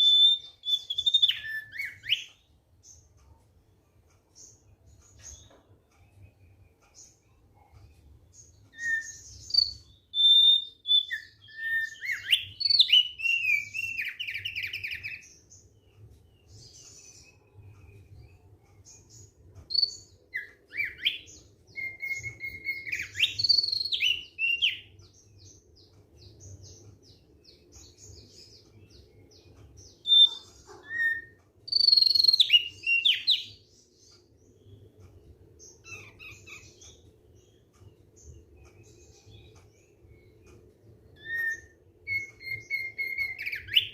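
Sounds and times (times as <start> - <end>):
bird singing whistled phrases: 0.0 - 2.3, 8.7 - 15.2, 19.7 - 24.9, 30.0 - 33.6, 41.2 - 43.9.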